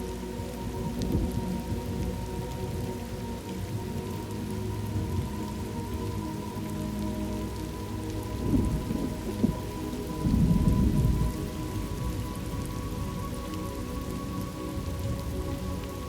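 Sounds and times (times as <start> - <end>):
steady rain: 0.0 - 16.0
thunder rumbling: 0.8 - 2.9, 8.3 - 12.7.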